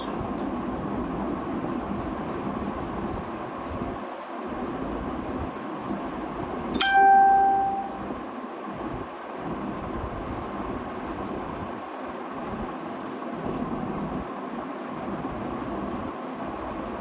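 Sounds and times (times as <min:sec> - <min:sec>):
bell-like ding: 0:06.8 - 0:08.1.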